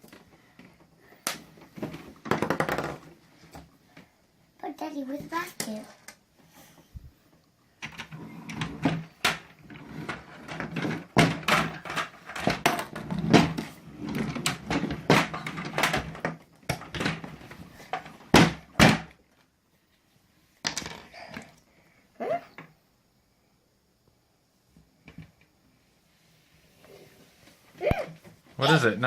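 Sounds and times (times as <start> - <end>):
plastic toys clattering: 1.5 - 3.1, 5.3 - 6.2, 7.8 - 19.1, 20.6 - 21.6.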